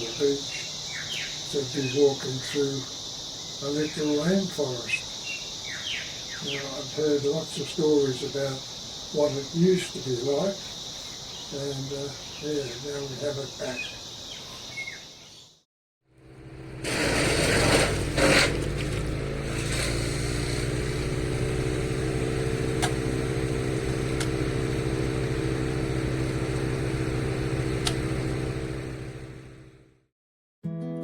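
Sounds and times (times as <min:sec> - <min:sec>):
motor engine humming: 0:16.2 - 0:30.0.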